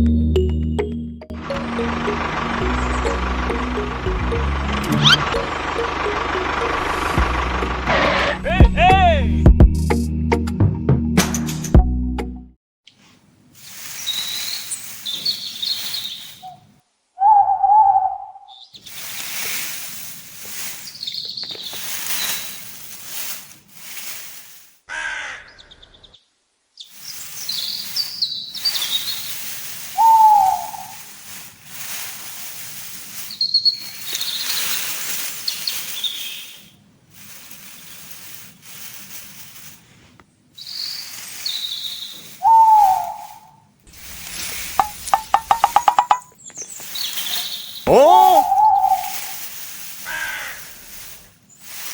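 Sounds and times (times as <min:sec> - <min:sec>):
lower falling bird call: 0:01.4 - 0:07.2, 0:13.6 - 0:19.6, 0:20.4 - 0:22.7, 0:26.9 - 0:31.4, 0:32.6 - 0:36.8, 0:40.6 - 0:51.6
high bird chirps: 0:01.6 - 0:05.6, 0:14.0 - 0:18.9, 0:20.8 - 0:22.6, 0:26.8 - 0:29.4, 0:30.0 - 0:31.0, 0:33.3 - 0:34.8, 0:35.4 - 0:36.8, 0:40.6 - 0:43.5, 0:44.8 - 0:49.2.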